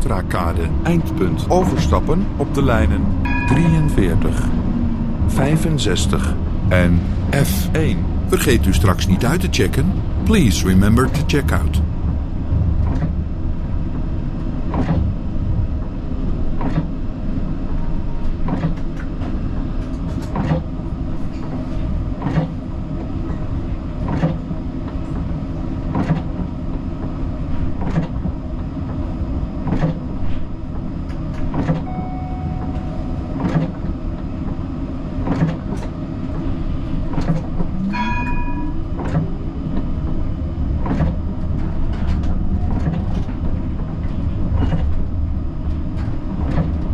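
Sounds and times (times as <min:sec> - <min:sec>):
tram rumbling on rails: 0:00.0 - 0:46.9
short ringing tone: 0:03.3 - 0:04.1, 0:31.8 - 0:33.4, 0:37.9 - 0:38.8
rising whine: 0:31.8 - 0:34.2.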